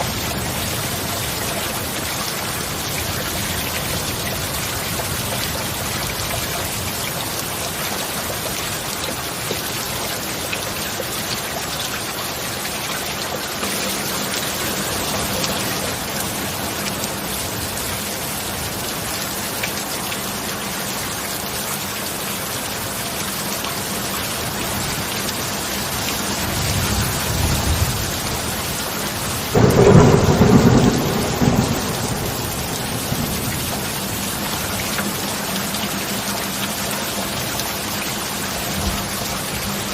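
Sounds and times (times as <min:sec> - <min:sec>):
heavy rain: 0:00.0 - 0:39.9
thunder rumbling and cracking: 0:26.4 - 0:35.1.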